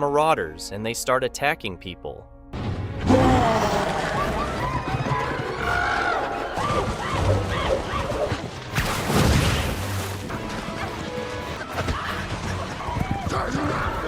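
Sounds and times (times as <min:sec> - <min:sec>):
film music score: 0:00.0 - 0:14.0
people shouting and shrieking: 0:03.0 - 0:08.5, 0:11.6 - 0:14.0.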